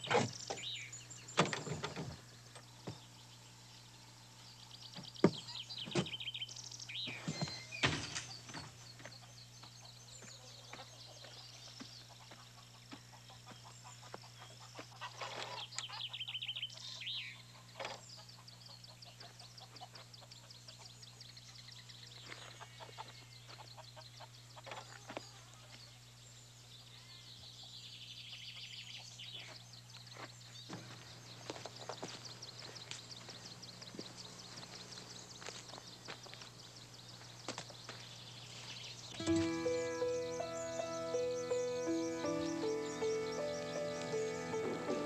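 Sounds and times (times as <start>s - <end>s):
birds chirping and calling: 0.0s - 26.1s, 26.7s - 45.0s
bird trill: 39.0s - 45.0s.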